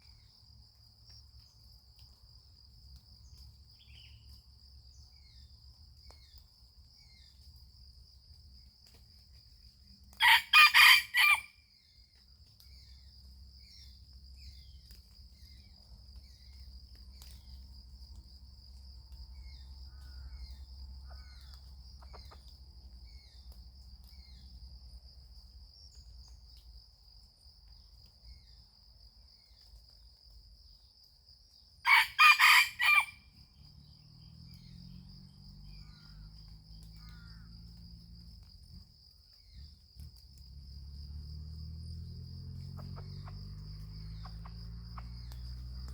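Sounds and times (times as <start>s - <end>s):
rooster crowing: 10.2s - 11.6s, 31.8s - 33.3s.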